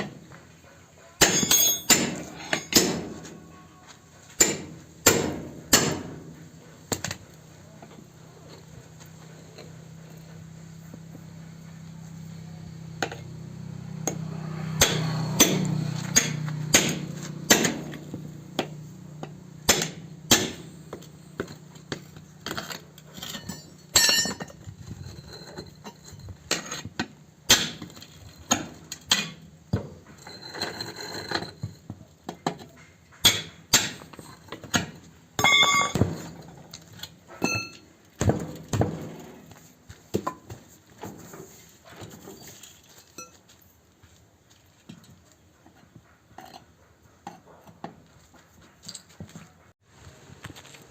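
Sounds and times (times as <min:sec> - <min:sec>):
metallic clink: 0:01.2 - 0:02.9, 0:23.1 - 0:26.3, 0:35.4 - 0:36.4, 0:37.4 - 0:37.9
hammer striking tyre: 0:01.2 - 0:03.6, 0:04.2 - 0:07.3, 0:13.0 - 0:41.3.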